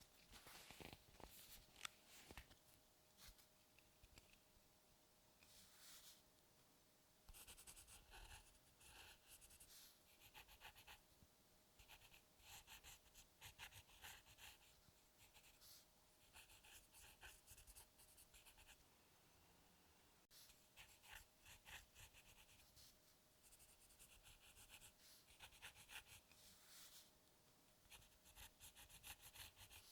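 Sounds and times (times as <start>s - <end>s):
faint steady hum: 0.0s - 29.9s
drawing tool scratching paper: 23.5s - 26.2s, 27.9s - 29.9s.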